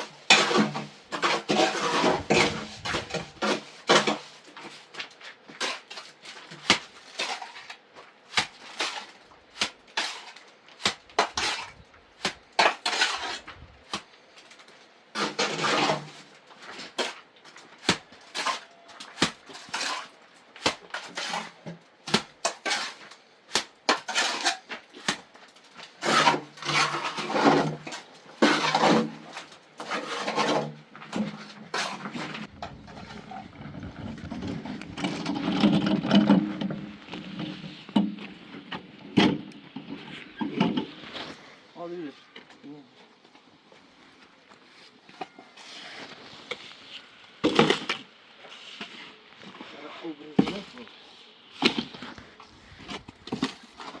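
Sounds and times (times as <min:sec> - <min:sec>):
objects knocking and scraping: 0:00.0 - 0:13.8, 0:23.9 - 0:41.4, 0:47.4 - 0:49.7, 0:51.6 - 0:54.0.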